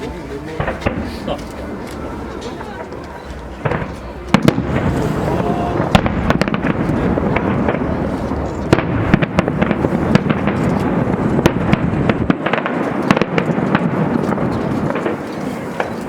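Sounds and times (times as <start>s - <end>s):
fireworks crackling: 0.0s - 16.0s
sharp firework bangs: 3.6s - 16.0s
deep rumble: 4.5s - 10.1s.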